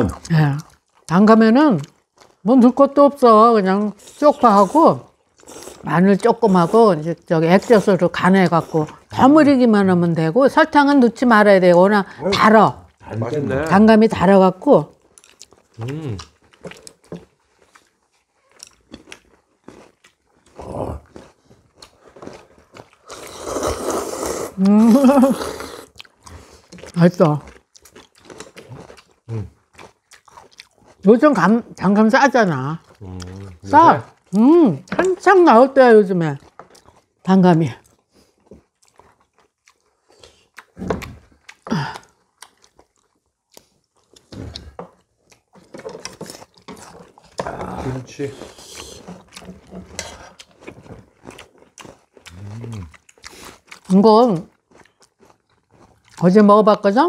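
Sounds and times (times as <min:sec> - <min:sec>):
people chewing and crunching: 0:00.0 - 0:57.0.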